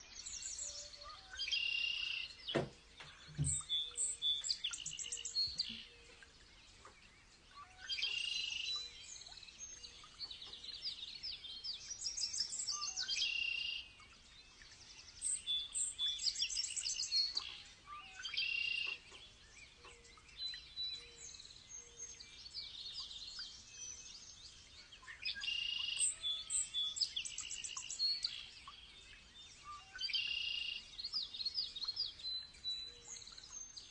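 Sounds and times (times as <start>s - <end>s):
songbirds singing: 0.0s - 33.9s.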